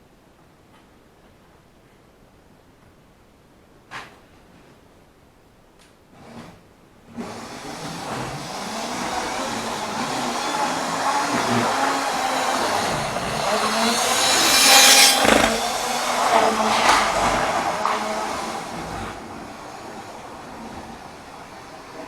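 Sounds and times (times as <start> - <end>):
model train running on track: 7.2 - 22.0.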